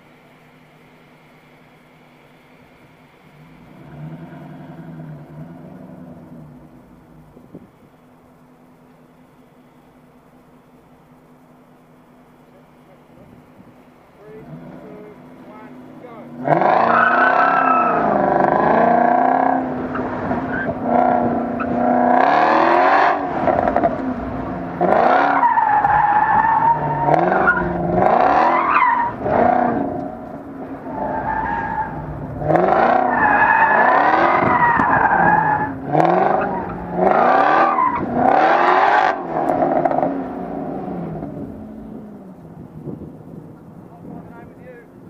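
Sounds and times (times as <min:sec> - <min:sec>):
car engine accelerating hard: 0:02.8 - 0:45.0
tyres squealing: 0:14.1 - 0:22.0, 0:25.0 - 0:30.0, 0:30.8 - 0:38.7.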